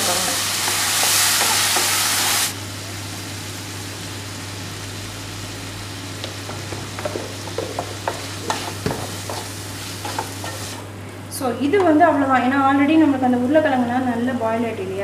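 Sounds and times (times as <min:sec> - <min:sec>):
potatoes sizzling in oil: 0:00.0 - 0:11.0
spatula scraping pan: 0:08.0 - 0:10.8.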